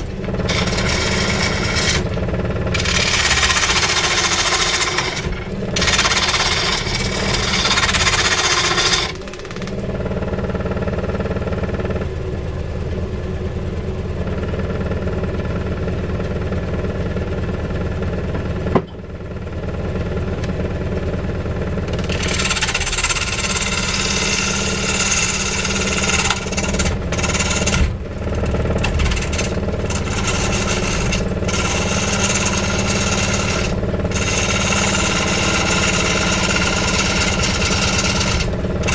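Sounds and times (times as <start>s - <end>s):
wood being cut: 0.0s - 12.0s, 21.6s - 38.9s
machine motor humming: 0.0s - 38.9s.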